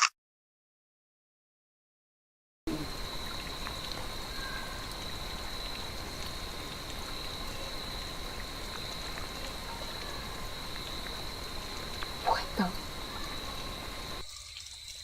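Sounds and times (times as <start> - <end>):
constant hiss: 2.7 - 15.0
frogs trilling: 2.7 - 15.0
faint ticks: 11.9 - 12.2.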